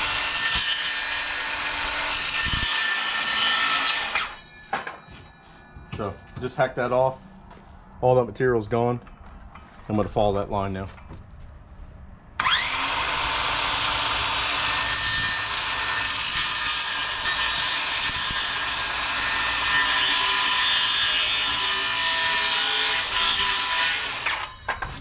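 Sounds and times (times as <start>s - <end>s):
circular saw cutting plywood: 0.0s - 4.4s, 12.4s - 24.5s.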